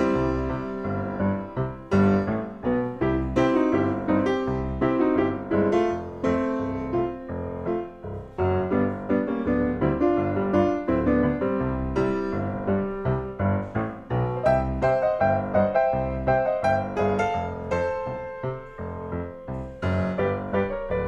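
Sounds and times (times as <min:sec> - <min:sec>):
bouncy piano music: 0:00.0 - 0:21.0.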